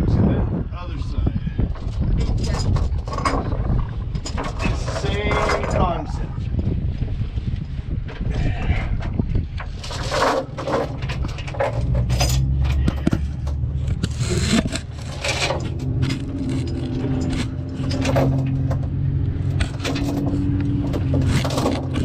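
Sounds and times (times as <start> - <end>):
steel chain clanking and scraping: 1.8 - 6.0, 9.6 - 22.0
low engine hum: 10.4 - 22.0.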